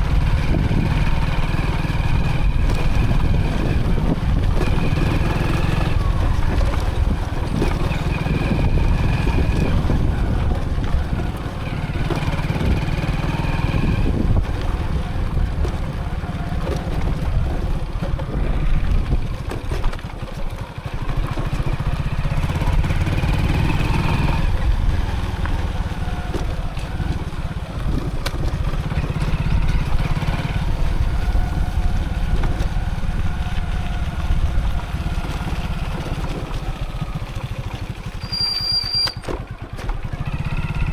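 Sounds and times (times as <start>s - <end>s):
motorcycle engine rumbling: 0.0s - 40.9s.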